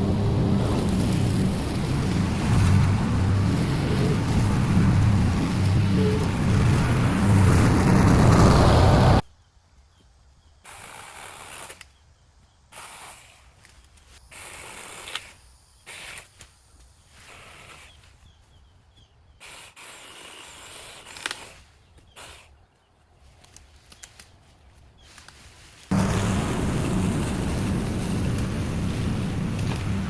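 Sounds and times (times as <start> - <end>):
hissing bursts: 25.9 - 30.0
small engine running: 25.9 - 30.0.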